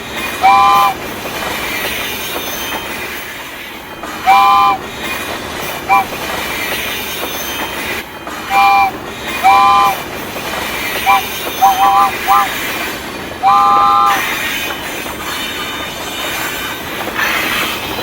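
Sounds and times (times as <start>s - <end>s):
moving train rumble: 0.0s - 18.0s
train horn chord blasts: 8.5s - 10.0s, 11.0s - 12.6s, 13.4s - 14.3s.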